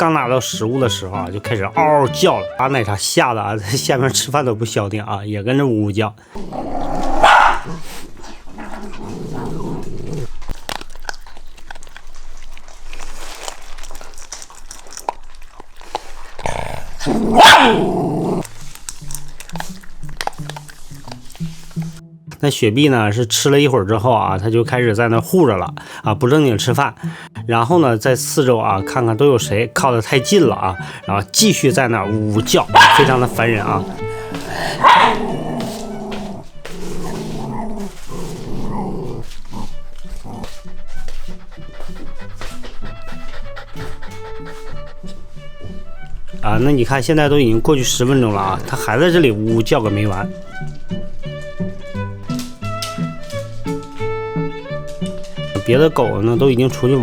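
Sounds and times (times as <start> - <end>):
background music: 0.0 - 8.0, 16.4 - 57.0
dog growling and barking: 6.4 - 21.5, 32.4 - 46.3
dog crying loudly: 6.6 - 8.0, 17.0 - 18.4, 32.6 - 38.4.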